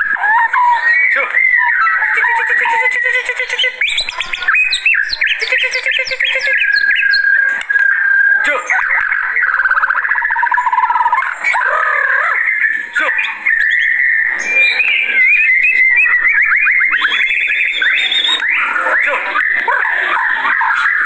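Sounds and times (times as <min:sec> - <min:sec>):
bird singing loudly: 0:00.0 - 0:21.0.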